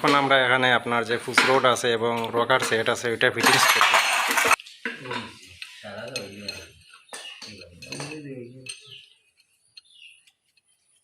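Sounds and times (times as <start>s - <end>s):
metal parts clinking: 3.4s - 4.6s.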